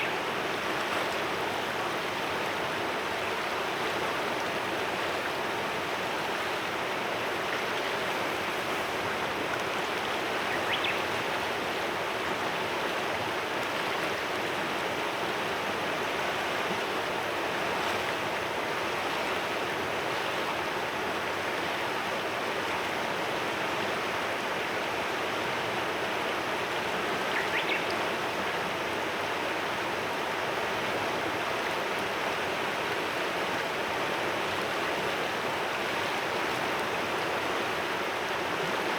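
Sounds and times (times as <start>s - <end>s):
river rushing: 0.0s - 38.9s
faint bird chirps: 10.5s - 11.0s, 27.3s - 27.9s.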